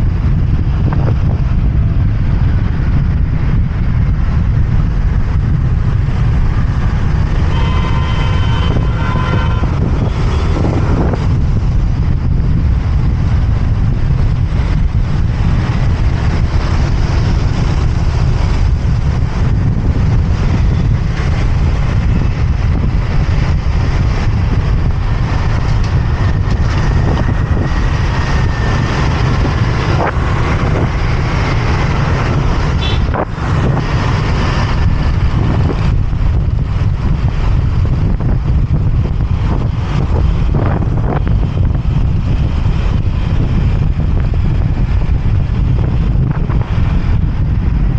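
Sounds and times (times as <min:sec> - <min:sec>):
motorbike engine running: 0:00.0 - 0:47.9
wind rumble on microphone: 0:00.0 - 0:47.9.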